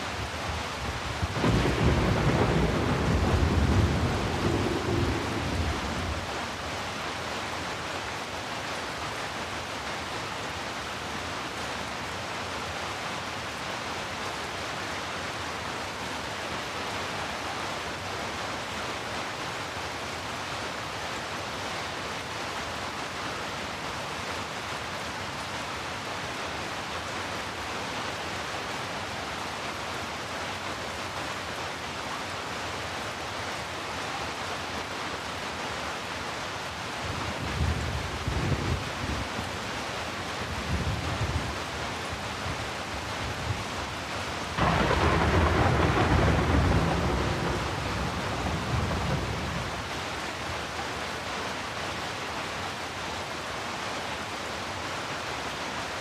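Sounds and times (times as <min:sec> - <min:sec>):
rain hiss: 0:00.0 - 0:56.0
low thunder rumble: 0:01.2 - 0:06.3, 0:44.6 - 0:49.9.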